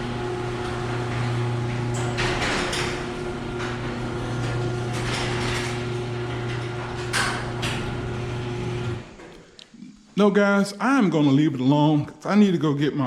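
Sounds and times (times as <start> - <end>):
garage door opener motor humming: 0.0 - 9.4.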